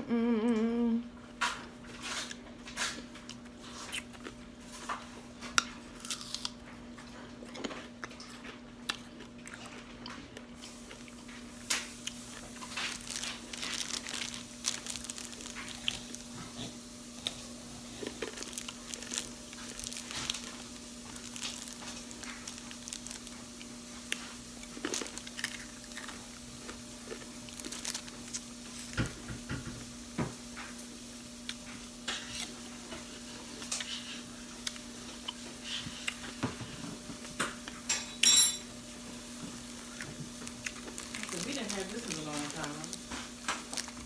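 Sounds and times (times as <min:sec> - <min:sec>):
steady low hum: 0:00.0 - 0:29.2
chewing and crunching candy: 0:01.4 - 0:29.2, 0:31.5 - 0:36.4, 0:39.5 - 0:44.0.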